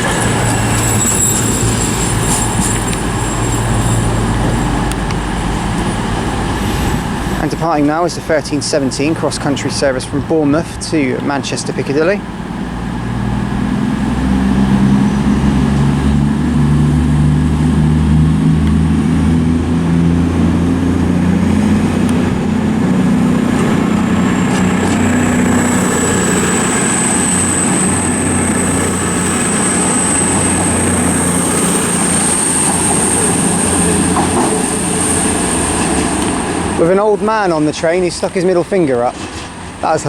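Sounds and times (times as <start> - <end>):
thin high squeal: 0.0 - 7.6, 24.3 - 36.2
diesel train engines running hard: 0.0 - 40.0.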